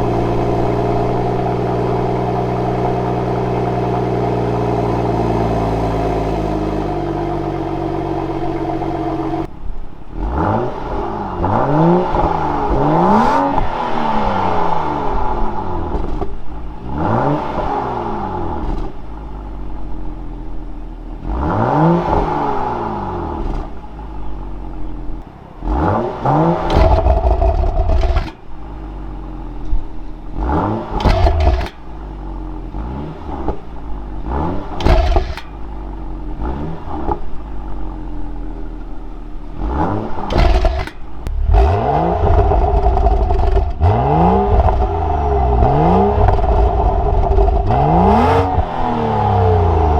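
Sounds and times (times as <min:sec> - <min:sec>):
car engine revving: 0:00.0 - 0:09.5, 0:25.0 - 0:49.9
exhaust pops and crackles: 0:26.6 - 0:28.6, 0:31.0 - 0:32.0, 0:34.8 - 0:35.7, 0:40.2 - 0:48.8.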